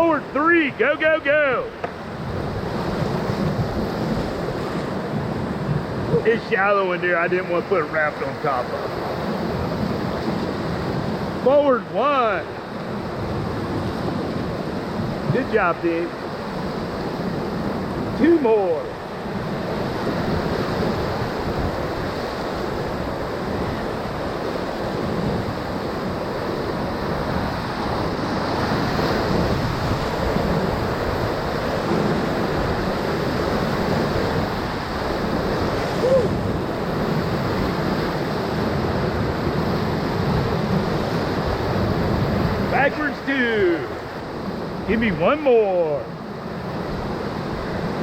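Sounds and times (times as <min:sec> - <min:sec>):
whitewater rushing: 0:00.0 - 0:48.0
wind noise on microphone: 0:02.0 - 0:06.3, 0:19.2 - 0:42.8
short cry: 0:36.0 - 0:36.4.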